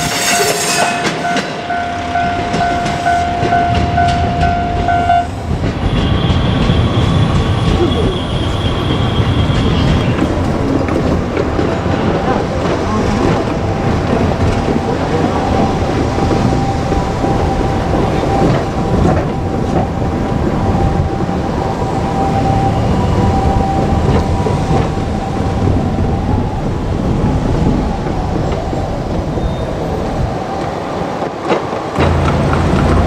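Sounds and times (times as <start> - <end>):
steady high tone: 0.0 - 8.4
diesel railcar rumbling past: 0.0 - 33.0
wheels clacking over rail joints: 0.0 - 33.0.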